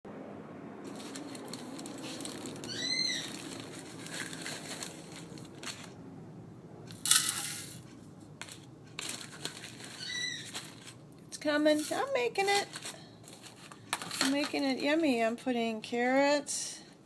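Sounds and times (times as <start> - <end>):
crinkling and rustling handling: 0.8 - 6.0, 6.9 - 15.4
cockatiel chirp: 2.7 - 3.4, 10.0 - 10.5.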